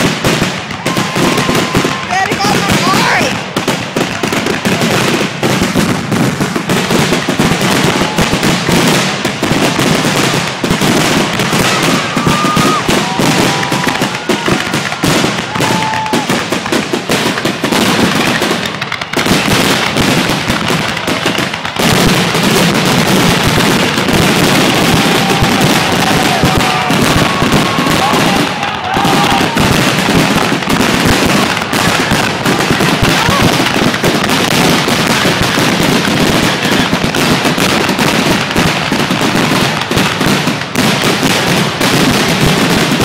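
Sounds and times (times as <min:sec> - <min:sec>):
fireworks bangs and crackling: 0:00.0 - 0:43.0
firework whistles: 0:00.7 - 0:03.2, 0:10.8 - 0:16.8, 0:21.8 - 0:33.8.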